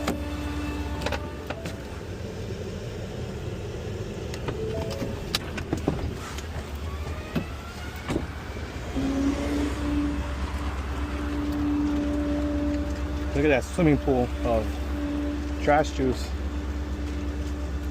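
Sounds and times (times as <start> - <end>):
garbage truck engine running: 0.0 - 17.9
steady whine: 0.0 - 17.9.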